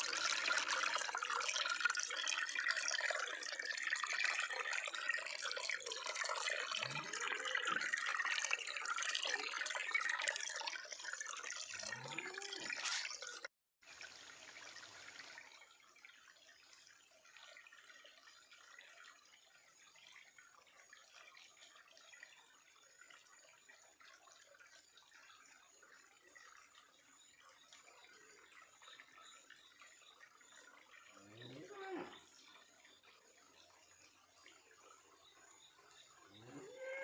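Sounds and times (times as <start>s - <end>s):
water trickling: 0.0s - 37.0s
water rushing and splashing: 11.9s - 13.5s.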